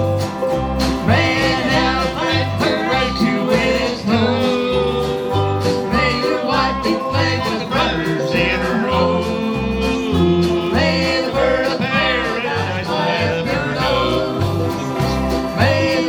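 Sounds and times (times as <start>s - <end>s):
banjo picking: 0.0s - 16.0s
bass line: 0.0s - 16.0s
guitar picking: 0.0s - 16.0s
sliding lead melody: 0.0s - 16.0s.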